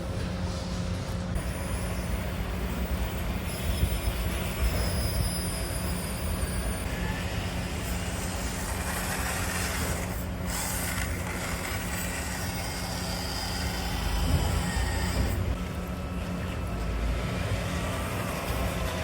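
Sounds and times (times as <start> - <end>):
small electric motor whirring: 4.7 - 15.6.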